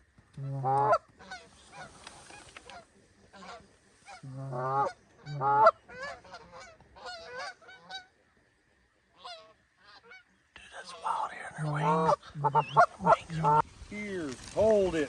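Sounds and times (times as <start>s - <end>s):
goose honking: 0.4s - 8.1s, 11.6s - 13.6s.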